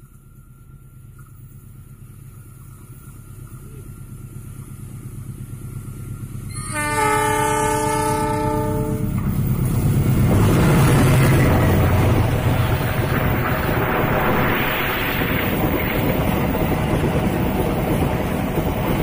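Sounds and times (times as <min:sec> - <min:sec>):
locomotive engine rumble: 0:00.0 - 0:19.0
train wheels on rails: 0:00.0 - 0:19.0
train horn blast: 0:06.5 - 0:09.3.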